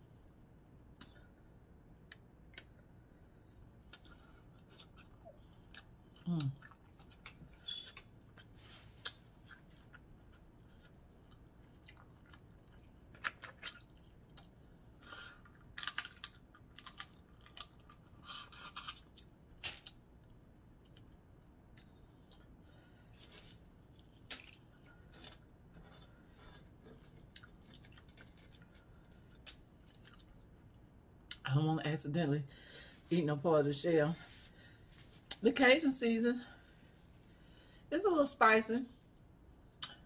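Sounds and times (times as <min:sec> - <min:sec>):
quiet chewing: 0:00.0 - 0:31.5
crab shells cracking by hand: 0:15.5 - 0:18.0.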